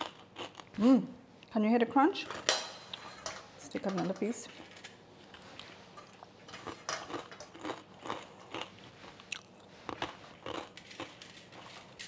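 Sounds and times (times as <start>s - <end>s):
chewing crispy fried chicken: 6.6s - 12.0s.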